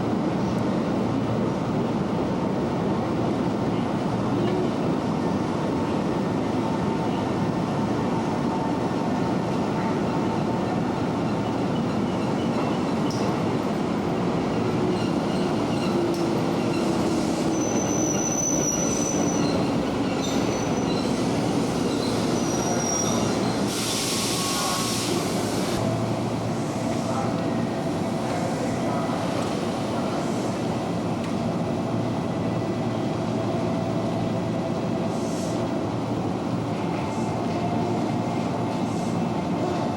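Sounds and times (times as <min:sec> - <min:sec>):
electric train rumbling on rails: 0:00.0 - 0:39.9
train wheels squealing: 0:09.8 - 0:25.5.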